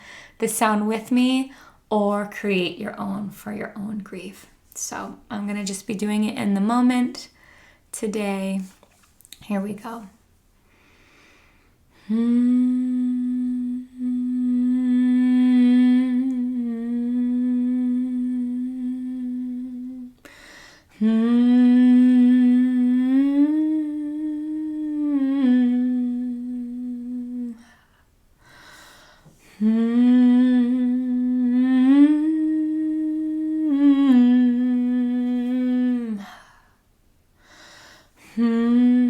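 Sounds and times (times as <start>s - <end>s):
woman breathing: 0.0s - 0.4s, 1.5s - 1.9s, 7.3s - 7.9s, 10.6s - 12.9s, 20.2s - 21.0s, 27.5s - 30.0s, 36.2s - 38.6s
woman humming long notes: 12.0s - 20.3s, 21.0s - 27.8s, 29.5s - 36.4s, 38.2s - 39.0s.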